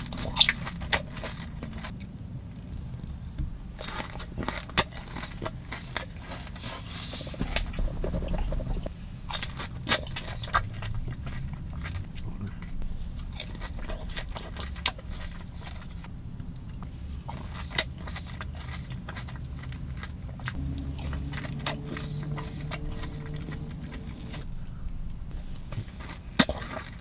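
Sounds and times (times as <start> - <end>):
chewing grass crunches: 0.0 - 27.0
low steady hum: 7.2 - 27.0
wet mouth clicks: 20.5 - 27.0.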